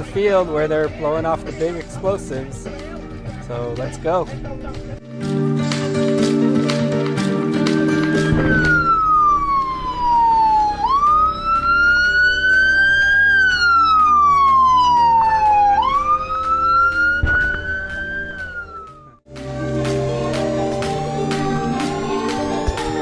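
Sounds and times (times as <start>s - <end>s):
background music: 0.0s - 23.0s
siren wailing: 7.8s - 19.2s.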